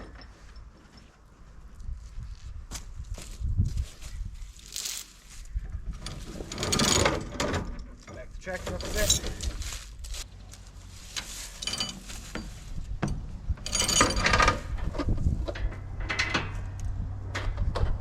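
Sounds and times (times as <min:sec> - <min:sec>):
metal rigging clanking: 0:04.6 - 0:05.2, 0:05.9 - 0:10.2, 0:11.1 - 0:16.8.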